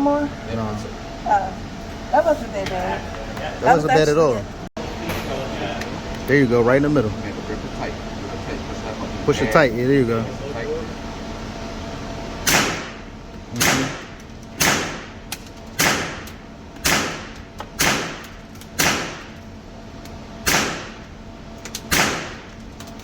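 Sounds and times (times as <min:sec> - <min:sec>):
gunshots with short echo: 0:12.4 - 0:15.2, 0:15.8 - 0:19.3, 0:20.4 - 0:21.0, 0:21.9 - 0:22.5.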